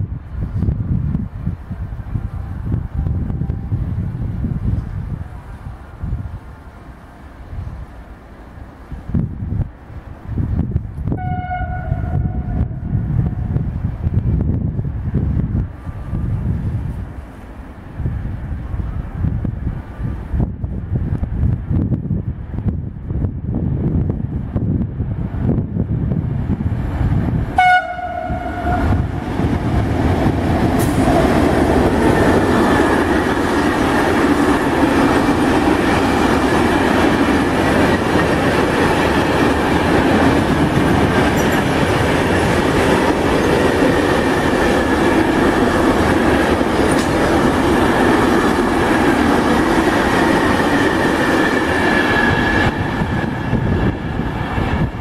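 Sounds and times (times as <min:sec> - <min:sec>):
freight train passing: 0:00.0 - 0:55.0
wheels rumbling on rail: 0:00.0 - 0:55.0
train horn blast: 0:11.1 - 0:13.5, 0:27.6 - 0:29.2.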